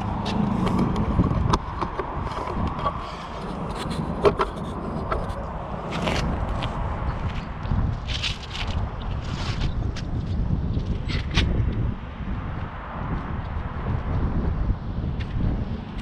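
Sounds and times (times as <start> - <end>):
clicks knocks and scrapes of hand work: 0.2 - 6.3.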